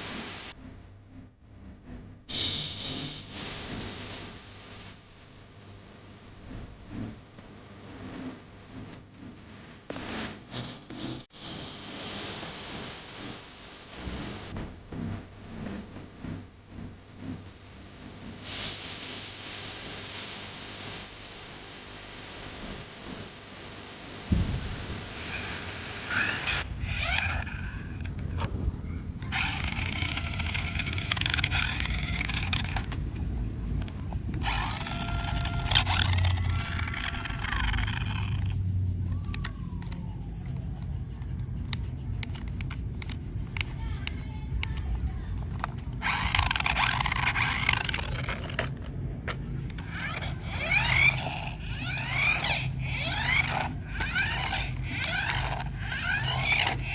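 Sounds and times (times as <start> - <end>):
steady low hum: 0.0 - 56.9
toy car wheels on rough ground: 29.3 - 33.0, 34.0 - 56.9
small electric motor whining: 34.0 - 56.9.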